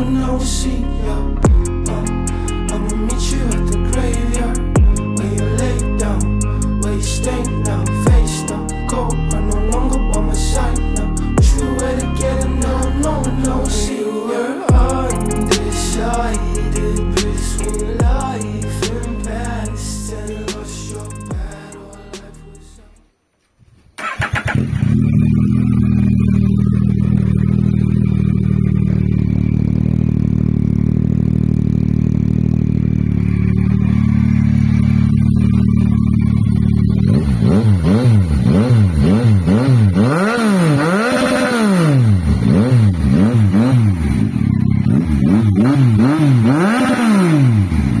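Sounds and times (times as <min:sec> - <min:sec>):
motorcycle engine idling: 0:10.8 - 0:12.2, 0:24.5 - 0:37.4
engine revving in throttle blips: 0:24.0 - 0:48.0.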